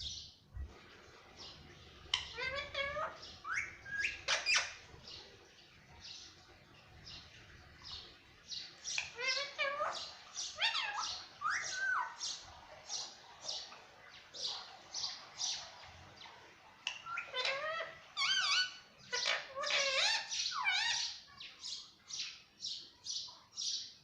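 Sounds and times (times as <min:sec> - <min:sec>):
parakeet squawking and chirping: 0:01.4 - 0:05.3, 0:07.8 - 0:13.8, 0:16.7 - 0:22.4.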